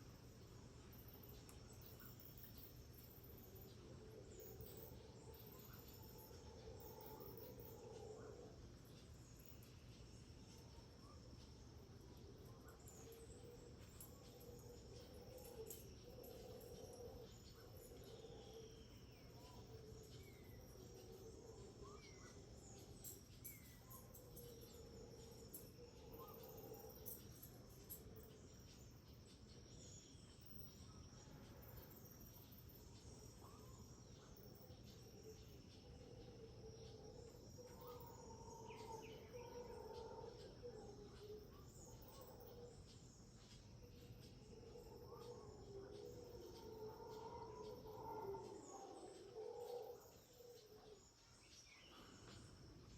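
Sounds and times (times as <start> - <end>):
distant howler monkeys roaring: 44.4 - 51.1.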